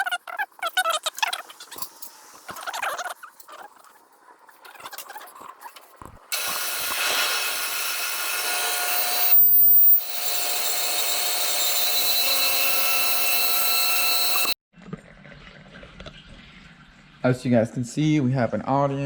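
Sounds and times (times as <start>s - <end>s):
power tool cutting metal pipe: 6.3s - 14.6s.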